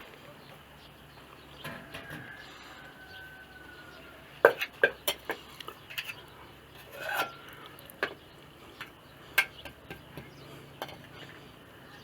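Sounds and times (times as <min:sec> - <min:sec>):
utensils clinking on pots: 0:04.4 - 0:06.2, 0:06.8 - 0:08.2, 0:08.8 - 0:10.2.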